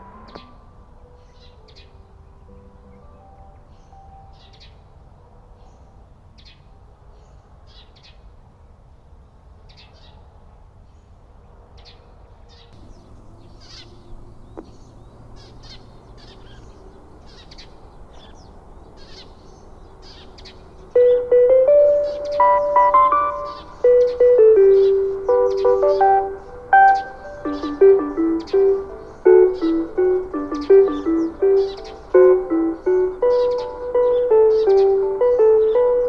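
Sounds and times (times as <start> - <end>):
small birds chirping: 12.5 - 36.0
steady low hiss: 12.8 - 36.0.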